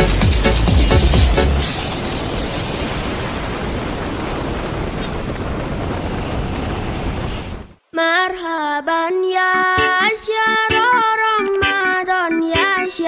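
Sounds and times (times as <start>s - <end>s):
rushing hiss of noise: 0.0s - 7.8s
child singing: 7.9s - 13.0s.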